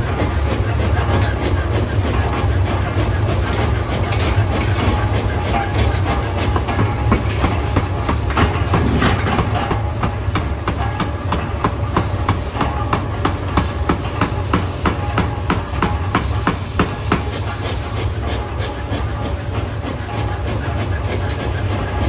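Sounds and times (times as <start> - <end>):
machinery droning: 0.0 - 22.0
sharp metal knocks: 6.6 - 17.2.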